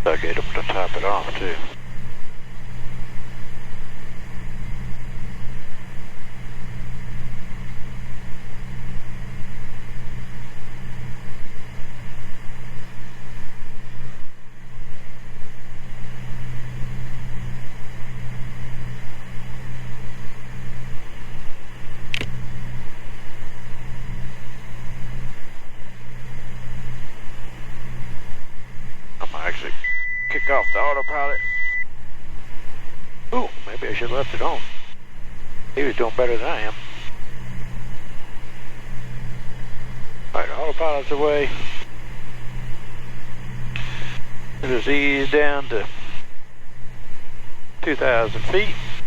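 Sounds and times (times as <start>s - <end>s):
propeller plane engine droning: 0.0s - 49.0s
short click: 22.1s - 22.4s.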